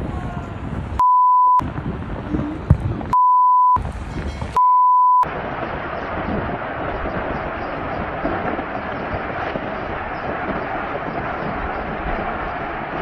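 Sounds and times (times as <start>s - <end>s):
wind noise: 0.0s - 4.6s, 5.2s - 13.0s
censor bleeps: 1.0s - 1.6s, 3.1s - 3.8s, 4.6s - 5.2s
steady rushing noise: 3.8s - 4.6s, 5.2s - 13.0s.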